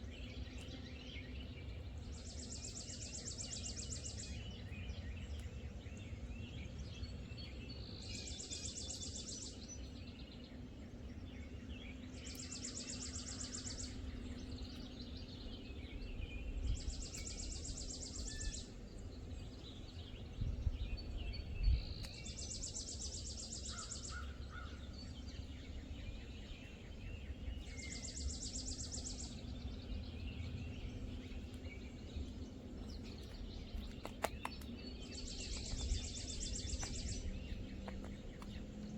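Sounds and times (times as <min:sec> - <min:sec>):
birds chirping: 0:00.0 - 0:38.9
songbird trilling: 0:20.9 - 0:38.9.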